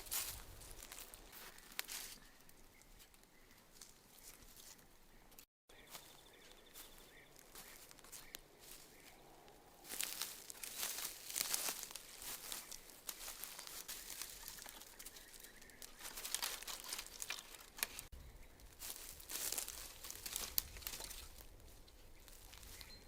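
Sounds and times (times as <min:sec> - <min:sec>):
crinkling and rustling handling: 0:06.8 - 0:18.1, 0:18.8 - 0:23.0.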